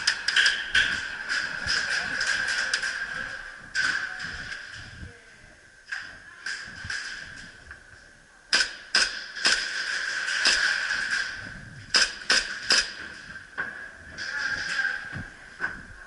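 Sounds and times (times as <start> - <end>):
airsoft gun shots: 8.5 - 10.7, 11.9 - 13.0.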